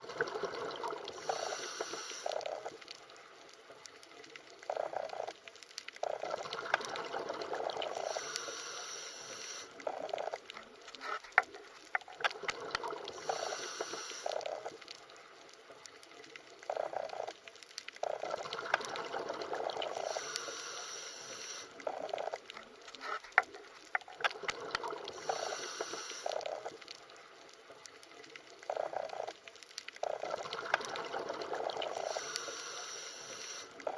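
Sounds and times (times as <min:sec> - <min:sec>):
underwater bubbling and gurgling: 0:00.0 - 0:33.9
sharp underwater clicks: 0:00.3 - 0:33.9.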